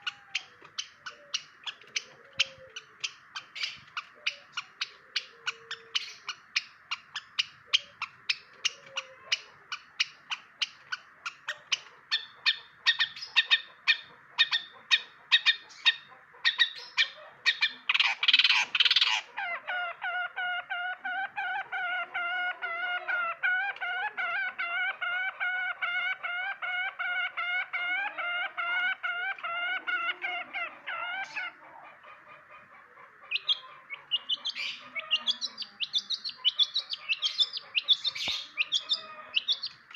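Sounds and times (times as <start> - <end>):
shrike calling: 0.0 - 32.1, 32.7 - 39.9.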